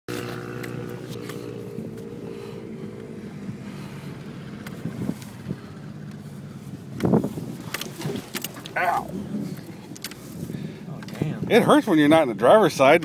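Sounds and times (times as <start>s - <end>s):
vehicle engine running: 0.1s - 10.9s.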